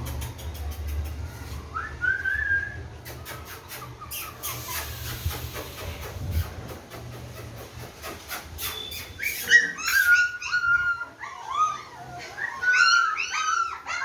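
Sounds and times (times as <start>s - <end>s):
puppies whimpering yelps: 3.4s - 5.2s, 9.0s - 14.0s.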